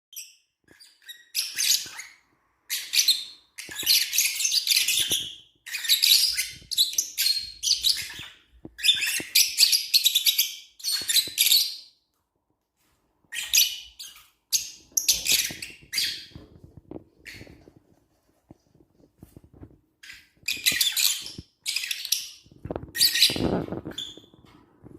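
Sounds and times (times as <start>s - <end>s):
lovebirds chirping: 0.2s - 12.0s, 13.2s - 16.6s, 20.0s - 24.4s.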